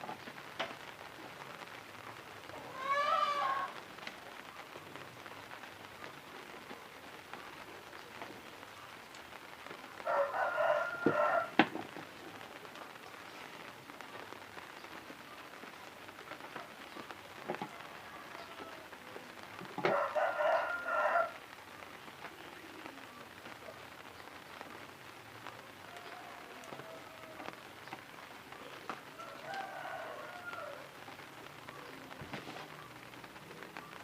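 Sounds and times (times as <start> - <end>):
faint steady hiss: 0.0 - 34.0
rooster crowing: 2.6 - 3.8, 10.0 - 11.6, 17.7 - 19.0, 19.8 - 21.4, 25.8 - 27.6, 29.1 - 31.0.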